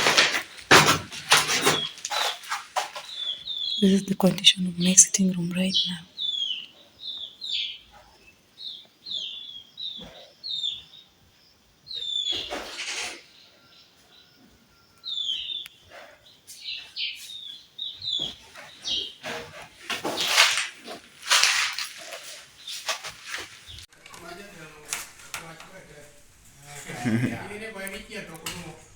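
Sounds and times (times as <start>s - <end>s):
bird chirping: 1.5s - 20.4s
rustling bursts: 19.8s - 23.9s.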